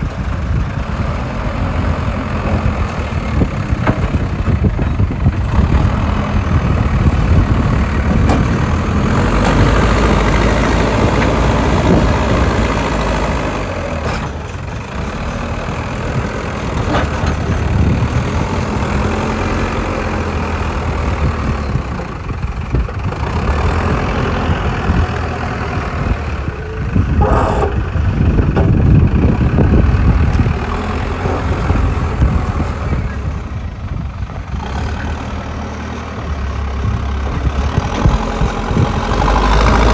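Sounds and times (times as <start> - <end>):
excavator diesel engine running: 0.0 - 39.9
sharp metal clank: 27.2 - 28.0.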